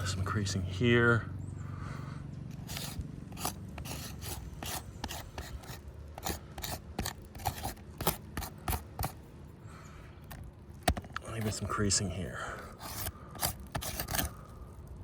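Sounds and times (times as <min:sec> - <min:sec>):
scraping on asphalt roof shingles: 0:02.5 - 0:09.2, 0:12.4 - 0:14.8.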